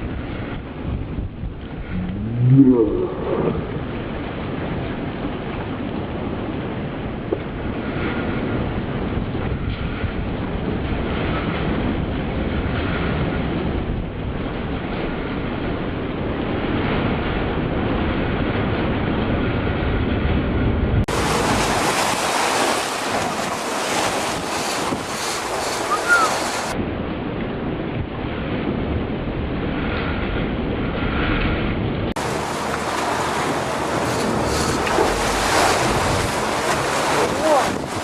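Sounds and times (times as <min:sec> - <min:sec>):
rush of open sea: 0:00.0 - 0:38.0
wind buffeting microphone: 0:00.0 - 0:38.0
boat noise: 0:01.6 - 0:05.4, 0:21.1 - 0:26.8, 0:32.2 - 0:38.0.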